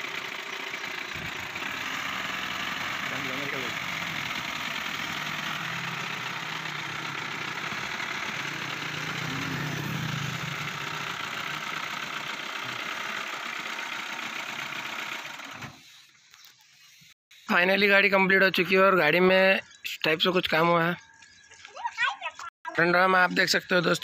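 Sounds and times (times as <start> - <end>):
diesel engine idling: 0.0 - 15.9.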